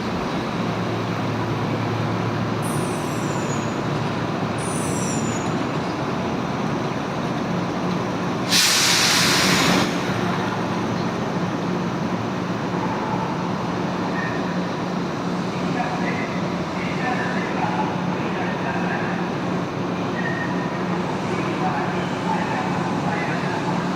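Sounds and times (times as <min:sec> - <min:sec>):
train rumbling: 0:00.0 - 0:23.9
compressed air hiss: 0:08.5 - 0:10.0.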